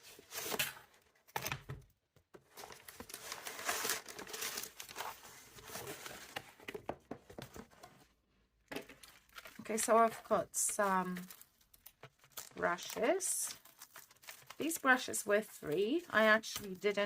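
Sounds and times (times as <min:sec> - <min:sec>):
packaging crinkling and rustling: 0:02.5 - 0:06.8, 0:08.7 - 0:14.9.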